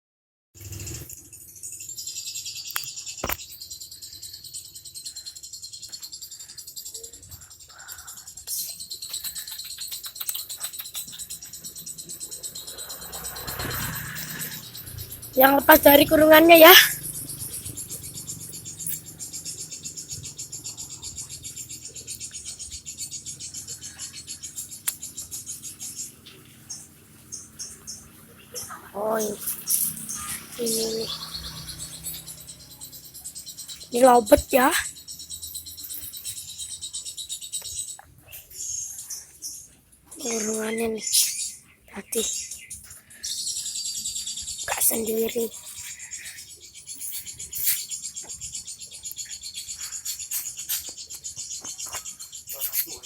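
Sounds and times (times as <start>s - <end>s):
insects trilling: 0.6s - 53.0s
sharp clicks: 2.7s - 3.4s, 9.0s - 11.3s.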